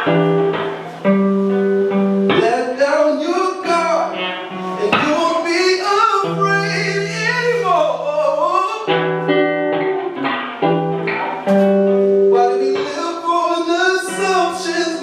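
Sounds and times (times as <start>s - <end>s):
acoustic guitar playing: 0.0s - 15.0s
person singing long held notes: 2.4s - 9.0s, 12.3s - 15.0s.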